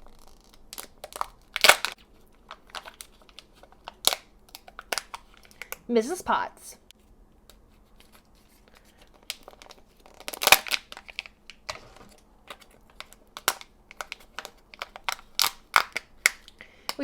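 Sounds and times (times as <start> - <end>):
foil and plastic crinkling: 0.0 - 5.8, 7.8 - 17.0.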